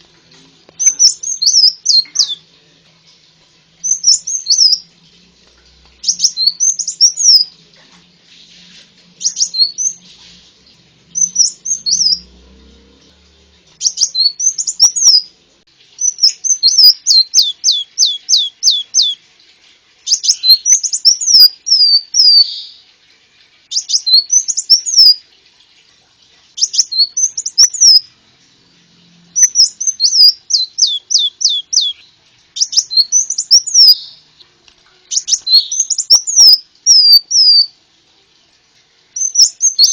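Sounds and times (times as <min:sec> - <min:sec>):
sunbird singing high chirps: 0:00.8 - 0:02.4, 0:03.8 - 0:04.9, 0:06.0 - 0:07.5, 0:09.2 - 0:10.1, 0:11.1 - 0:12.3, 0:13.8 - 0:15.3, 0:16.0 - 0:19.2, 0:20.1 - 0:22.8, 0:23.7 - 0:25.2, 0:26.6 - 0:28.1, 0:29.3 - 0:34.2, 0:35.1 - 0:37.7, 0:39.2 - 0:39.9.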